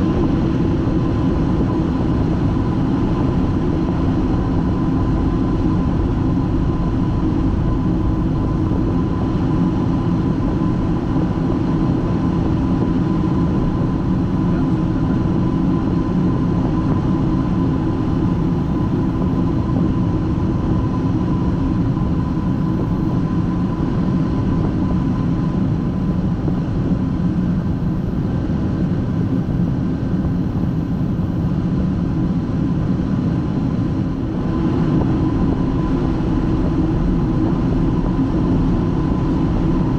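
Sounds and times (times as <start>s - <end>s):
jet engines droning: 0.0s - 39.9s.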